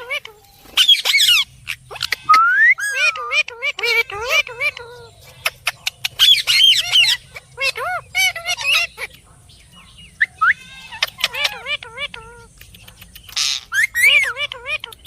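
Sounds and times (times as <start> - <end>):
harsh parrot squawk: 0.0 - 9.1
parrot chirping and squawking: 0.0 - 15.0.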